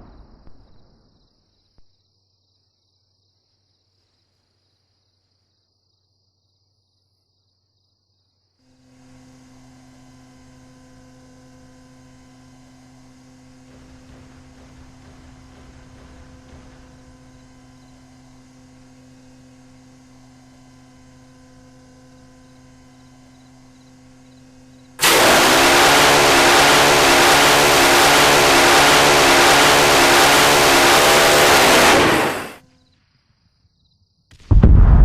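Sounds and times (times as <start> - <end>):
steady low hum: 8.8 - 32.6
loud rushing noise: 25.0 - 32.6.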